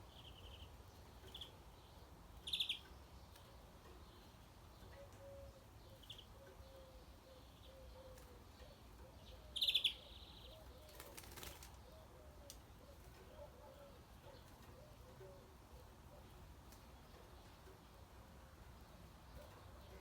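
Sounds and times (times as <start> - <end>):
bird chirp: 0.0 - 20.0
wings fluttering: 10.7 - 11.8.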